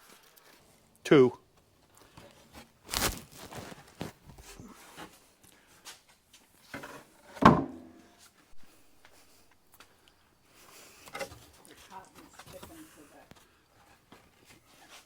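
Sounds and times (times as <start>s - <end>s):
wooden boards clunking on workbench: 6.8s - 7.9s.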